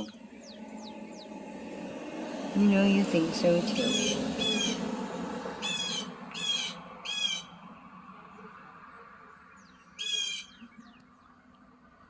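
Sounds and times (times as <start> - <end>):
low background hum: 0.0 - 8.3
bird squawking: 3.8 - 4.8, 5.6 - 7.5, 10.0 - 10.7.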